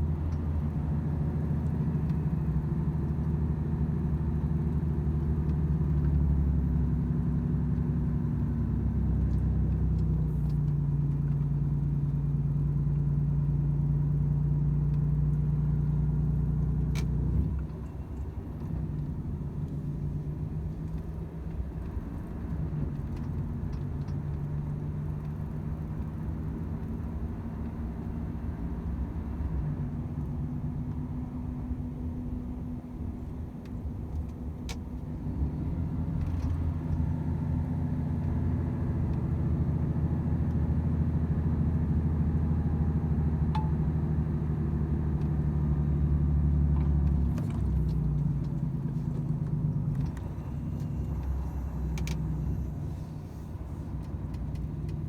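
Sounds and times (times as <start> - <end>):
truck diesel engine running: 28.7 - 55.0.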